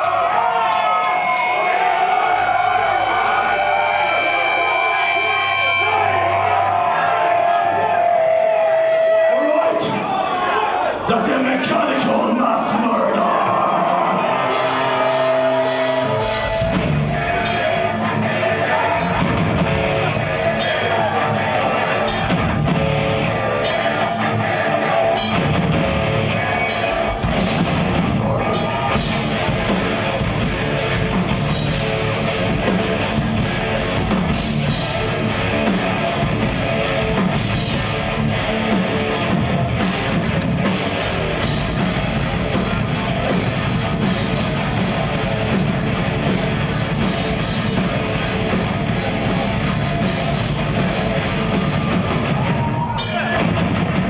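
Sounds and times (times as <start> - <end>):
distorted electric guitars: 11.6 - 54.0
bass guitar: 13.4 - 54.0
drum kit: 14.2 - 54.0.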